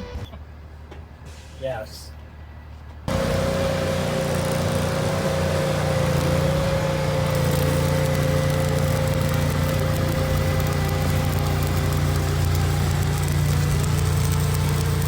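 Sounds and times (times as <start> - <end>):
motor humming: 3.1 - 15.0.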